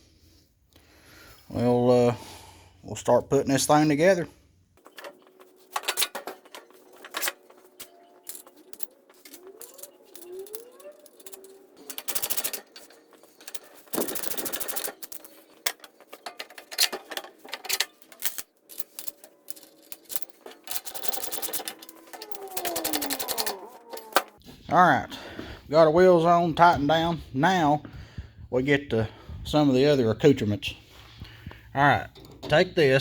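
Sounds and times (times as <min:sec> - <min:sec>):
metal parts clicking and knocking: 0:04.8 - 0:24.4
ratchet wrench clicking: 0:09.6 - 0:12.6.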